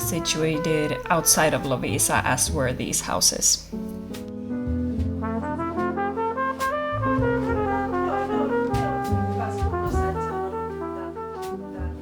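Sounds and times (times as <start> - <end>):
trumpet: 0.0 - 2.5, 5.2 - 12.0
light drums: 4.1 - 10.4
bass line: 4.4 - 12.0
trombone: 4.6 - 12.0.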